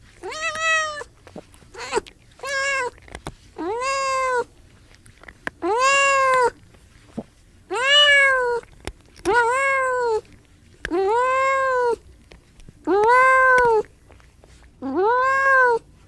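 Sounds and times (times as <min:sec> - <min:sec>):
cat meowing: 0:00.2 - 0:01.1, 0:01.7 - 0:03.0, 0:03.6 - 0:04.5, 0:05.6 - 0:06.6, 0:07.7 - 0:08.6, 0:09.2 - 0:10.3, 0:10.9 - 0:12.0, 0:12.9 - 0:13.9, 0:14.8 - 0:15.8.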